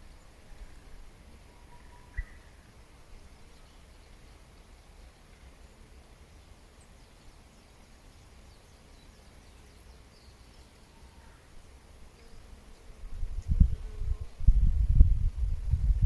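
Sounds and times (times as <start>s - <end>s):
distant bird chirps: 1.5s - 2.6s.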